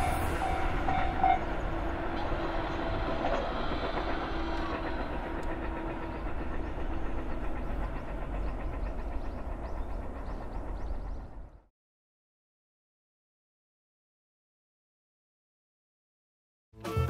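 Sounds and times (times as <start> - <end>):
railway crossing bell ringing: 0.0 - 1.6
electric train rumbling: 0.0 - 11.7.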